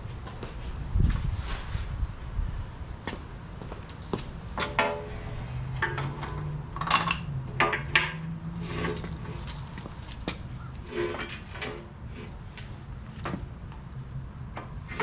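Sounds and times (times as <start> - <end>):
steel parts clanking: 4.6 - 9.7.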